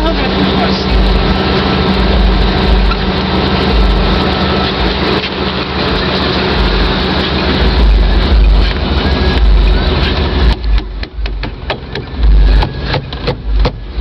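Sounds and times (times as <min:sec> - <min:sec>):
truck engine deep rumble: 0:00.0 - 0:14.0.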